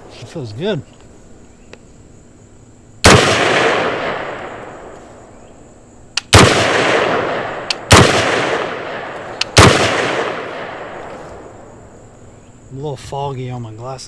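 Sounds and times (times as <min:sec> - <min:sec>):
gunshots with echo: 0:03.0 - 0:04.9, 0:06.2 - 0:11.1.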